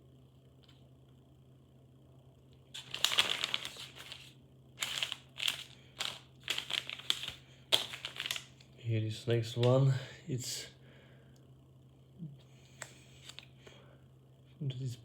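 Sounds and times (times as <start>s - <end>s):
packaging crinkling: 2.7s - 8.7s.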